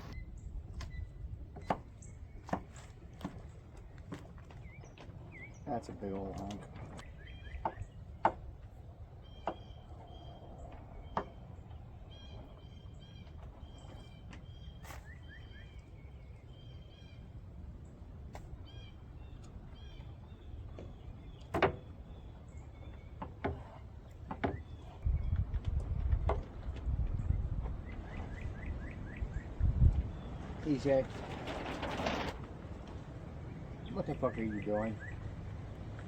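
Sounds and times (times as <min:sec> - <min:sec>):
low outdoor rumble: 0:00.0 - 0:36.0
bird chirping: 0:07.0 - 0:08.3, 0:09.2 - 0:17.3.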